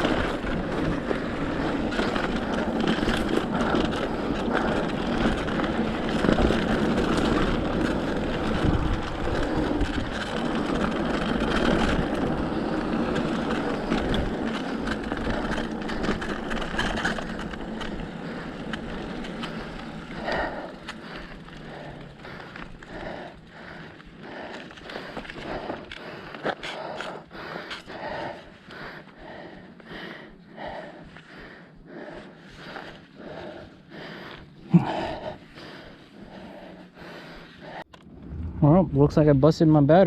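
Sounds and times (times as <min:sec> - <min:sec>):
bike rattling and knocking: 0:00.0 - 0:28.6
bike tyres on dirt trail: 0:00.0 - 0:40.0.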